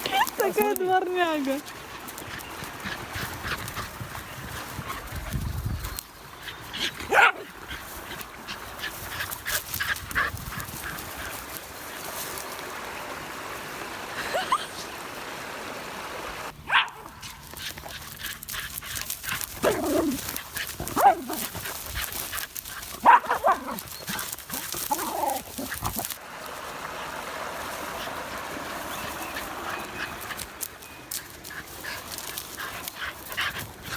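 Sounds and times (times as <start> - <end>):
dogs yelping: 1.7 - 11.6, 16.7 - 26.2.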